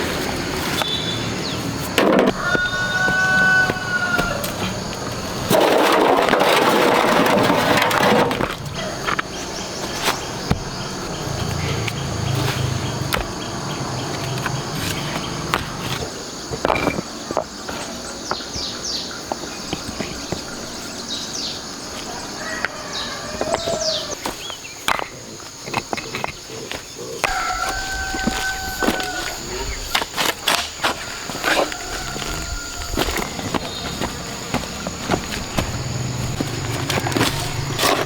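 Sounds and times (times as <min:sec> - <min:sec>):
loud rough scraping: 0:00.0 - 0:13.0, 0:25.1 - 0:38.0
high insect drone: 0:00.0 - 0:38.0.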